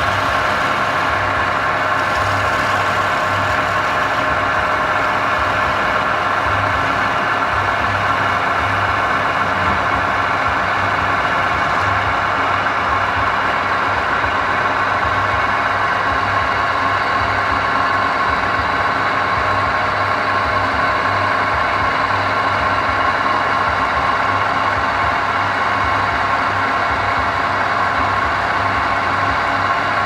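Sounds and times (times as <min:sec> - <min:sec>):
wood lathe hum: 0:00.0 - 0:15.0.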